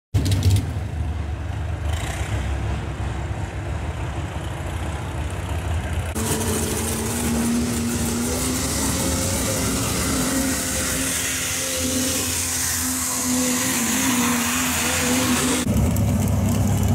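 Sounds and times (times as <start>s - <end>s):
truck engine idling: 0.2s - 16.9s
high-pitched drone with hiss: 6.2s - 15.7s.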